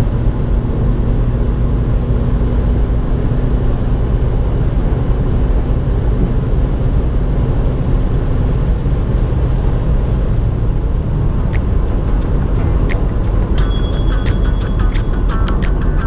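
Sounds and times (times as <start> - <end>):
car driving steadily: 0.0 - 16.0
sharp regular ticks: 10.8 - 16.0.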